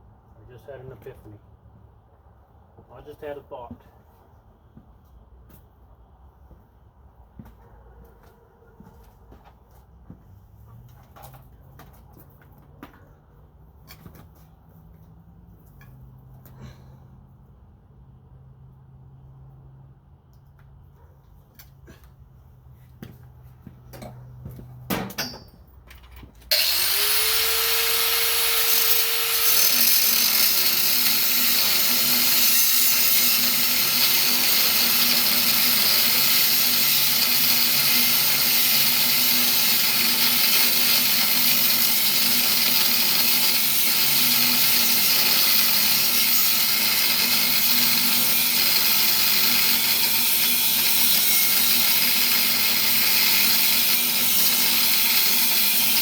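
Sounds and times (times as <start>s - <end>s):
power tool motor whine: 26.5s - 56.0s.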